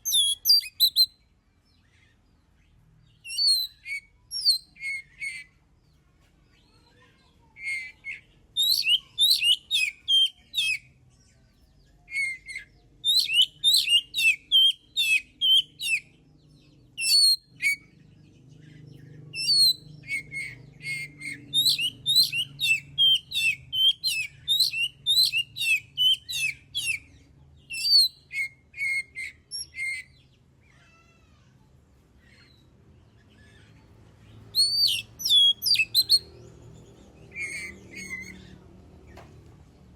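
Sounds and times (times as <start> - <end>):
songbird whistling and chattering: 0.0 - 1.2, 3.1 - 5.5, 7.4 - 10.9, 12.0 - 18.0, 18.7 - 30.3, 34.3 - 38.6.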